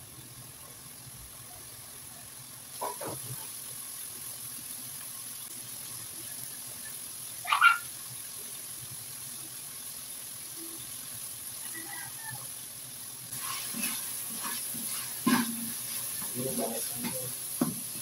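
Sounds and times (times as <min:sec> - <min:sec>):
meat sizzling in a wok: 0:00.0 - 0:18.0
spatula scraping a wok: 0:13.3 - 0:18.0
knock on wok: 0:17.0 - 0:18.0.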